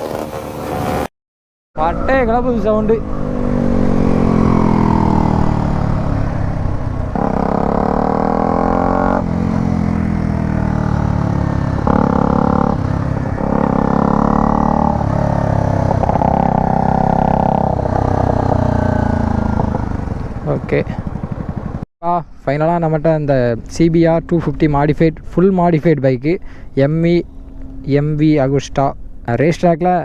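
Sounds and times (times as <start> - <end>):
motorcycle engine revving: 1.8 - 21.8.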